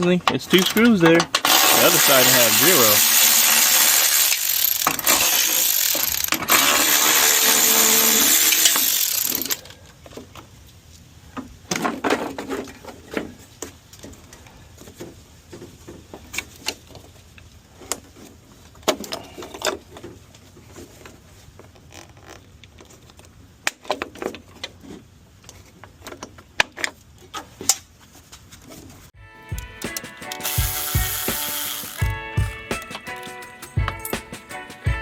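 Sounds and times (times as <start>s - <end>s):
cordless power drill whirring: 1.4s - 9.6s, 29.5s - 32.9s.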